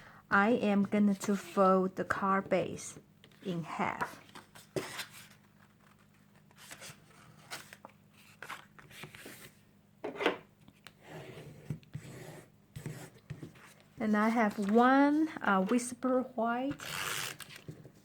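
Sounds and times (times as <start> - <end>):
paper rustling and scraping: 4.1 - 9.6, 11.1 - 15.8.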